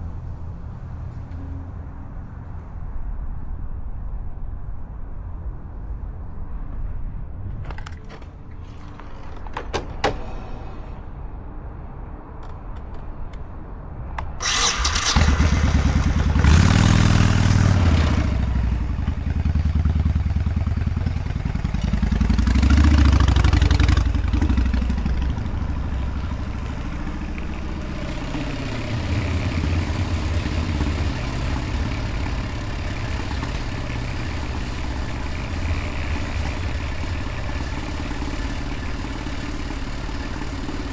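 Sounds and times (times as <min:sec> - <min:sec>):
motorcycle engine revving: 0:14.4 - 0:40.9.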